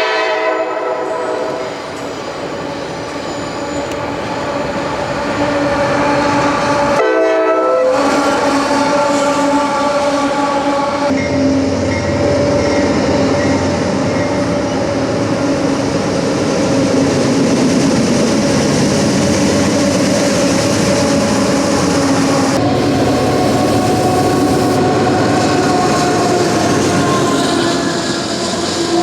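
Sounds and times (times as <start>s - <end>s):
locomotive horn blast: 0.0s - 1.8s, 6.0s - 13.4s, 21.3s - 29.0s
freight train passing on rails: 0.0s - 29.0s.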